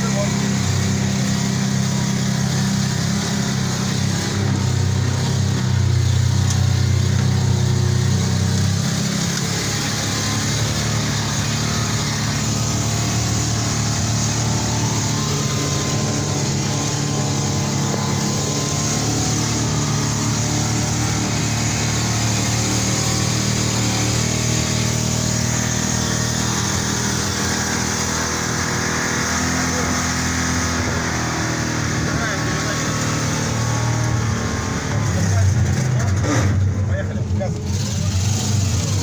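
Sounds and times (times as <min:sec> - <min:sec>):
armoured vehicle engine running: 0:00.0 - 0:39.0.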